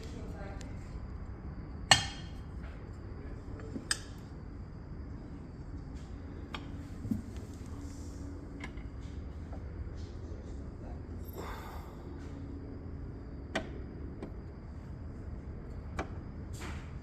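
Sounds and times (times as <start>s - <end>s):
low steady hum: 0.0s - 17.0s
metal stove parts clinking: 1.9s - 2.4s.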